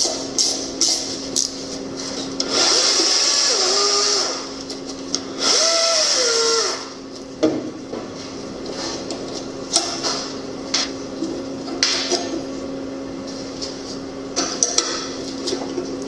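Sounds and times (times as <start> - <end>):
electric power tool motor: 2.4 - 4.6, 5.3 - 7.0.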